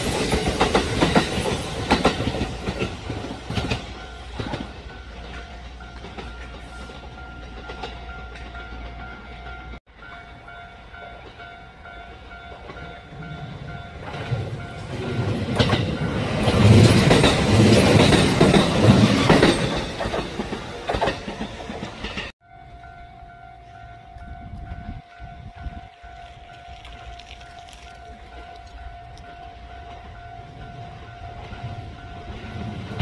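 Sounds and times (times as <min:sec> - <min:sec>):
train passing with wheel clatter: 0:00.0 - 0:33.0
pulsing ringing tone: 0:22.4 - 0:33.0.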